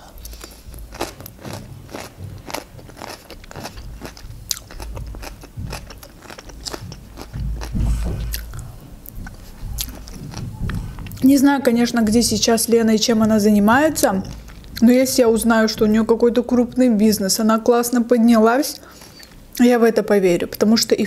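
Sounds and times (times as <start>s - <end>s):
crunching raw vegetable: 0.1s - 11.3s.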